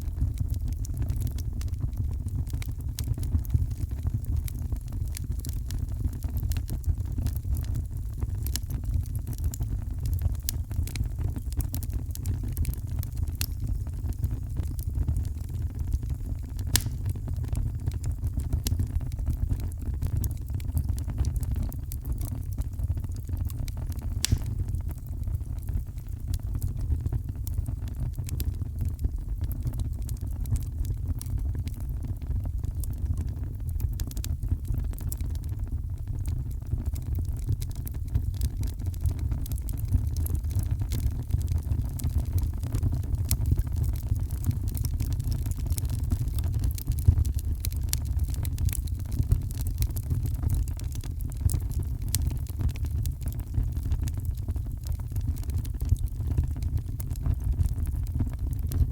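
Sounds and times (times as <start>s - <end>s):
fireplace crackling: 16.2s - 17.5s, 23.9s - 24.8s.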